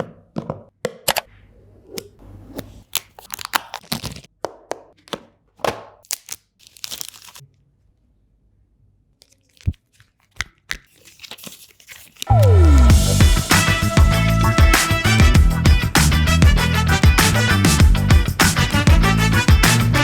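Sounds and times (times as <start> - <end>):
packaging tearing and crinkling: 2.8 - 4.3, 6.0 - 7.4, 9.2 - 12.3.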